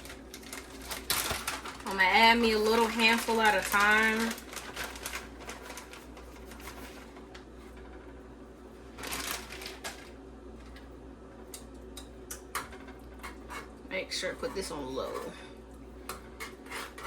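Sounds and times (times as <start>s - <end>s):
steady low hum: 0.0s - 17.0s
utensil stirring in saucepan: 12.6s - 17.0s.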